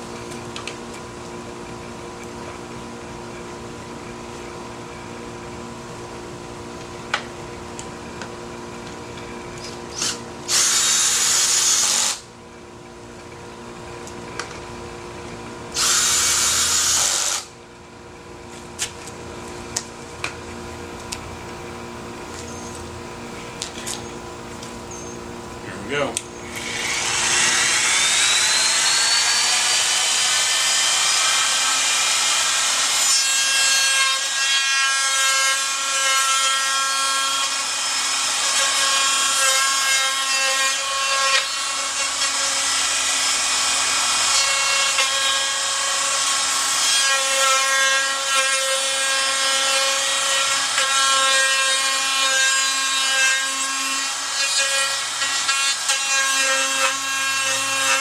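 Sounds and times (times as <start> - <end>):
router whining and cutting wood: 15.7 - 17.6, 25.8 - 58.0.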